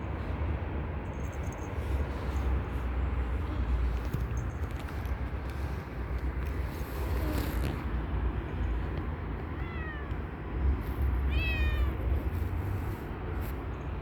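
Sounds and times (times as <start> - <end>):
cat meowing: 9.4 - 10.3, 11.2 - 12.1.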